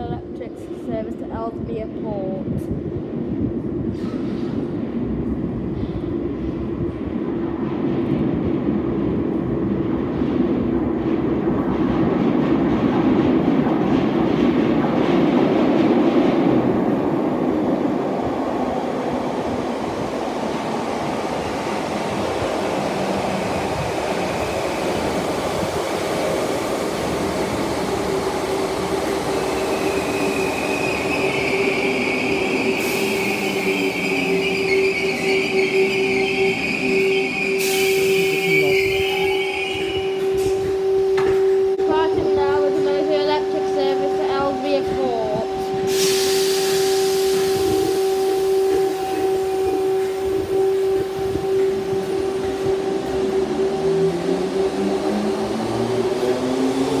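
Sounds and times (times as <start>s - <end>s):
train rumble: 0.0s - 57.0s
high squeal: 29.6s - 40.1s.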